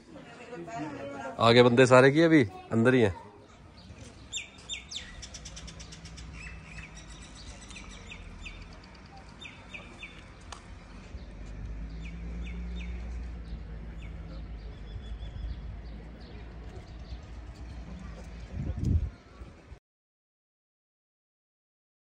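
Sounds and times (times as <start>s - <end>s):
small birds chirping: 2.5s - 19.8s.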